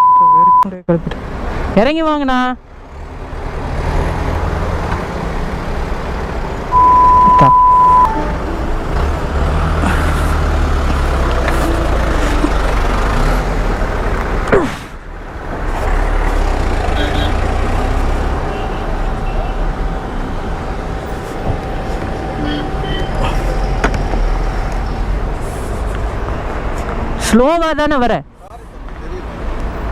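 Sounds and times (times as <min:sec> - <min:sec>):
censor bleep: 0:00.0 - 0:00.7, 0:06.7 - 0:08.2
road traffic rumble: 0:00.0 - 0:29.9.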